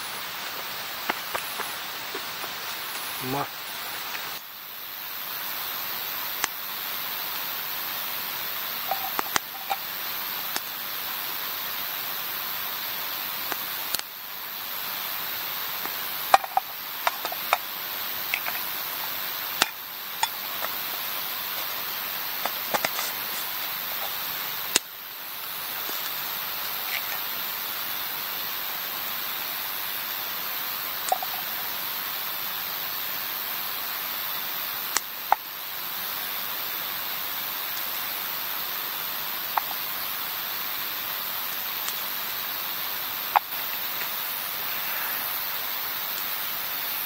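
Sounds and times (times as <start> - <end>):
steady rushing outdoor noise: 0.0 - 47.0
sharp clicks and crackles: 0.5 - 3.1, 8.8 - 10.7, 13.4 - 14.2, 15.8 - 18.8, 19.5 - 24.9, 34.9 - 35.5, 41.8 - 42.2.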